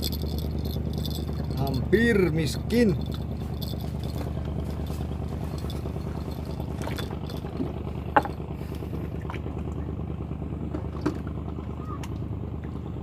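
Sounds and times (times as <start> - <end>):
small engine humming: 0.0 - 13.0.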